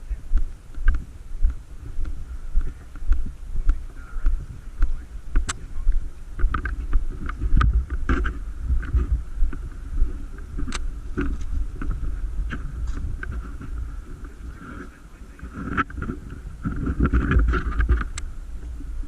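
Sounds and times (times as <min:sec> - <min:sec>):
wind buffeting microphone: 0:00.0 - 0:19.0
sharp clicks and snaps: 0:05.4 - 0:05.6, 0:10.6 - 0:10.9.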